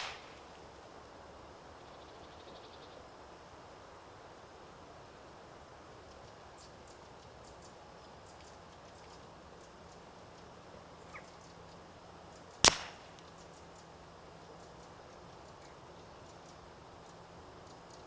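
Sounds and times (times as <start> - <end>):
silenced rifle shot: 0.0 - 0.4, 12.6 - 13.2.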